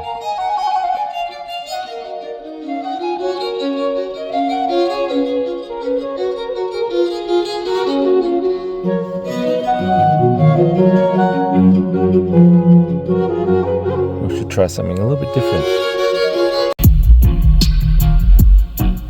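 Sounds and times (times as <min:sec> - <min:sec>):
classical violin music from car speakers: 0:00.0 - 0:16.8.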